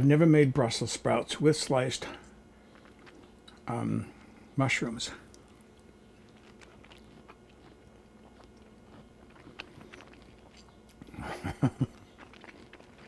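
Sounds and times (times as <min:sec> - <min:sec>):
person chewing food: 0:02.1 - 0:04.4, 0:05.2 - 0:13.0
mouth and throat sounds: 0:05.2 - 0:13.0.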